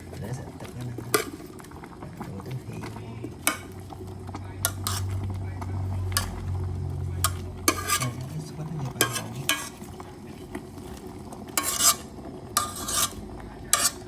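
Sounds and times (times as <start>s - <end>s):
low hum: 0.0s - 9.0s
utensil scraping cooking pot: 0.0s - 14.0s.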